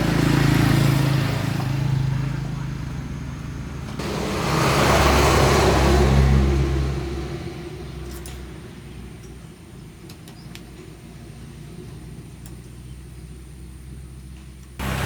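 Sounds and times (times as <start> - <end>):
vehicle driving past: 3.8 - 8.0, 14.8 - 15.0.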